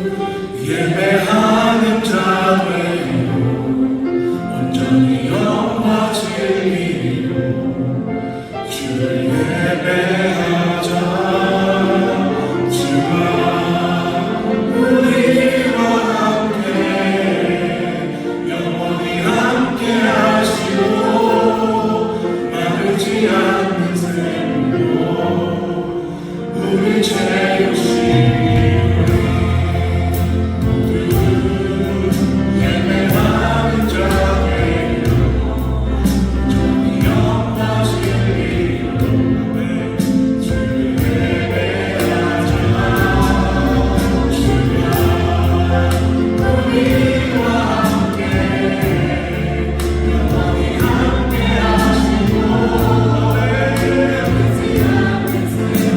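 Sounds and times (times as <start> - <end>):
choir singing: 0.0 - 55.9
deep bass: 28.1 - 55.4.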